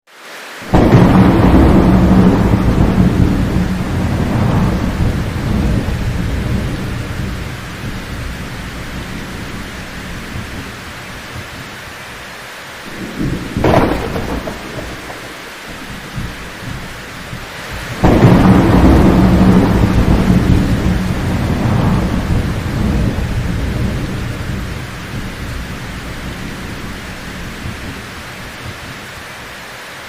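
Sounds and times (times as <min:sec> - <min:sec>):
steady rain: 0:00.1 - 0:30.0
sharp thunder crack: 0:00.6 - 0:11.8, 0:12.9 - 0:28.2
rolling thunder: 0:00.6 - 0:11.9, 0:12.9 - 0:29.3.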